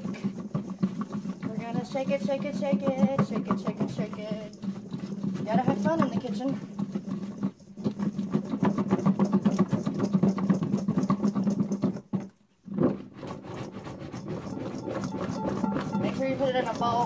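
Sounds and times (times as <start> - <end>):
potatoes rattling in shaken bowl: 0.0 - 12.2.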